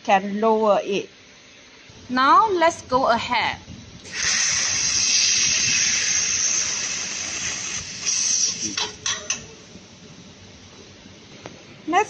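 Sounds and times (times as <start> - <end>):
laser cutter gas hissing: 4.0 - 9.4.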